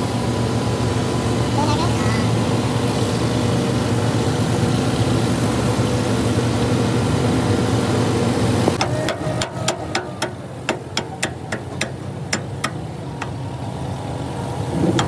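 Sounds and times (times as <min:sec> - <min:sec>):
tractor engine running: 0:00.0 - 0:15.0
sharp taps: 0:08.8 - 0:13.4.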